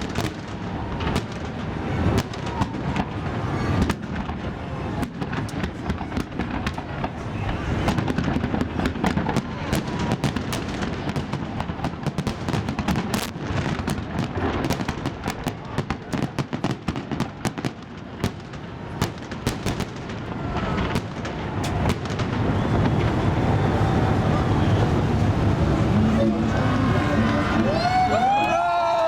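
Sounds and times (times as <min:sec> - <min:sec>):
fireworks bangs and crackles: 0:00.0 - 0:28.4
voices: 0:20.3 - 0:29.0.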